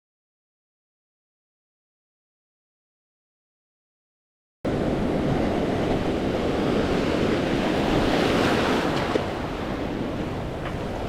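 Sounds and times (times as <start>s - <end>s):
ocean waves breaking: 4.7s - 11.0s
wind rumbling on microphone: 4.7s - 11.0s.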